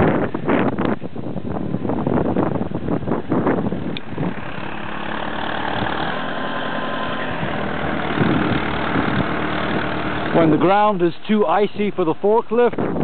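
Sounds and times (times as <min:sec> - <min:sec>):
backhoe loader diesel engine running: 0:03.1 - 0:12.9.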